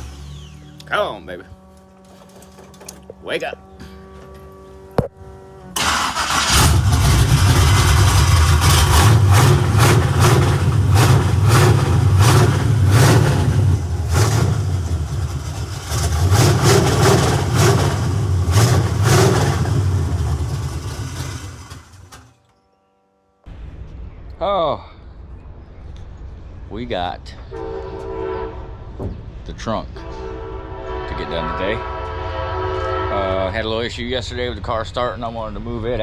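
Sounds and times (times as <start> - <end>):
car engine starting and rumbling: 0.0 - 3.1, 5.6 - 22.3.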